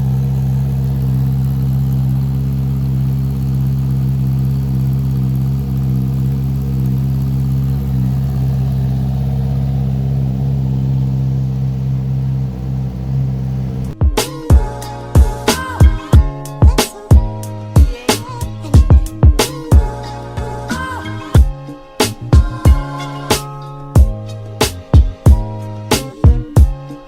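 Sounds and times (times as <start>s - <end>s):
motorcycle engine idling: 0.0s - 27.0s
music with hard beat: 14.0s - 27.0s.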